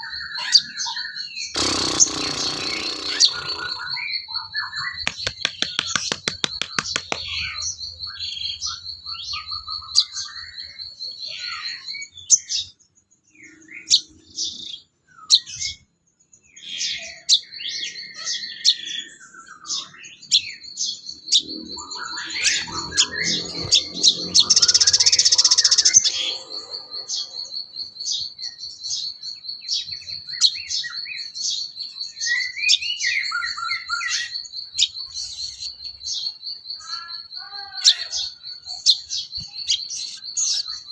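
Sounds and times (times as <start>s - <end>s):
bird chirps and calls: 0.0s - 40.9s
bird high trill: 1.5s - 7.7s, 21.4s - 27.5s
harsh burst of bird notes: 1.6s - 4.1s.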